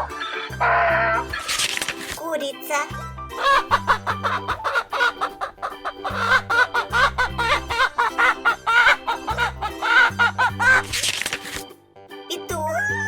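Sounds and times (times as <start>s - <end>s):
background music with bass line: 0.0s - 2.0s, 2.9s - 13.0s
hen clucking: 3.4s - 11.1s.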